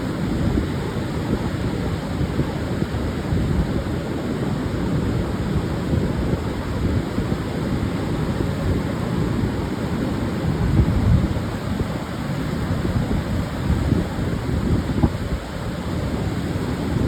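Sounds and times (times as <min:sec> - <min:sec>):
surf washing onto sandy beach: 0:00.0 - 0:17.0
wind buffeting microphone: 0:08.5 - 0:17.0.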